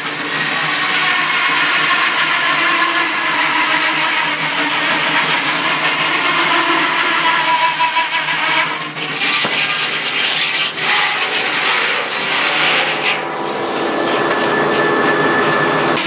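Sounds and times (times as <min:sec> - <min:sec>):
sawmill machinery running: 0:00.0 - 0:16.0.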